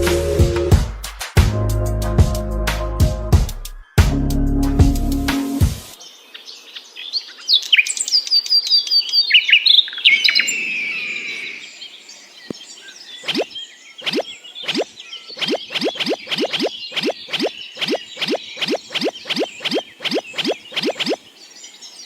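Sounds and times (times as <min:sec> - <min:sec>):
birds chirping: 0:06.0 - 0:22.0
short rising sweeps: 0:15.4 - 0:21.2.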